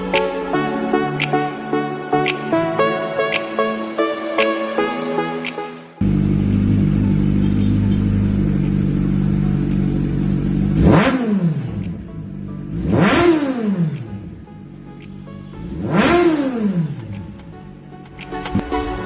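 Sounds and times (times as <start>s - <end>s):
motorcycle engine idling and revving: 6.0s - 19.0s.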